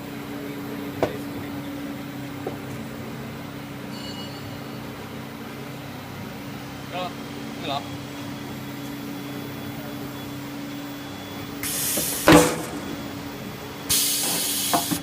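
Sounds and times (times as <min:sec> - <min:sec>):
machinery humming: 0:00.0 - 0:15.0
hiss: 0:11.6 - 0:12.8, 0:13.9 - 0:15.0
loud metallic clank: 0:12.0 - 0:13.4.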